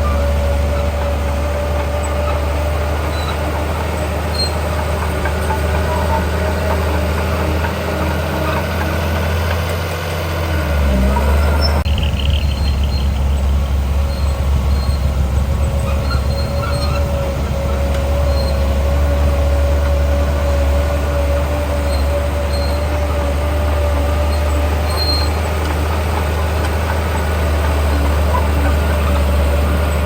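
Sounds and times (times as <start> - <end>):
heavy diesel machinery engine: 0.0 - 30.0.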